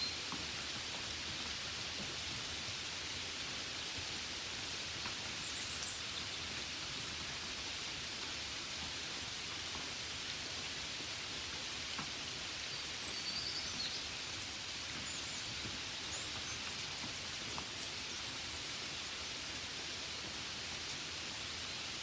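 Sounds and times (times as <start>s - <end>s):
gentle rain: 0.0s - 22.0s.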